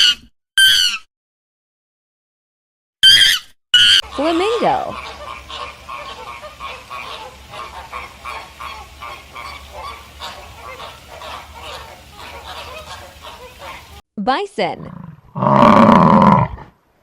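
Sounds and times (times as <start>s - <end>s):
flamingos honking: 3.0s - 14.0s.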